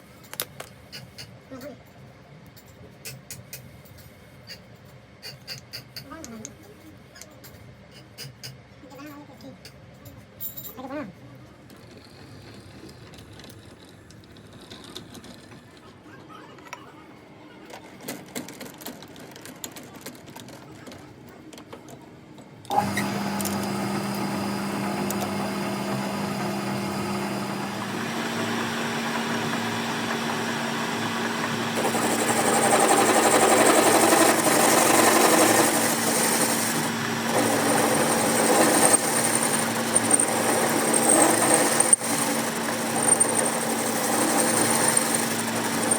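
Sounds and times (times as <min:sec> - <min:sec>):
high machine whine: 0:22.7 - 0:45.9
workshop machine humming: 0:22.7 - 0:45.9.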